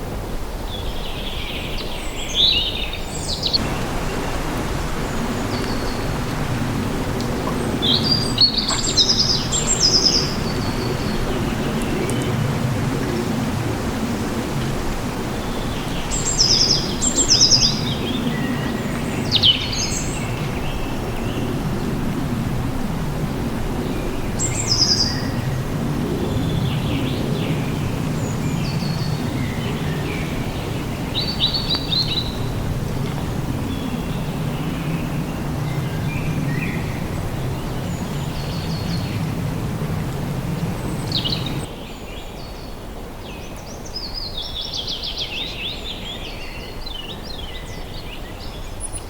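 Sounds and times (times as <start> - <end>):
birds chirping and trilling: 2.0 - 13.9, 40.6 - 41.7.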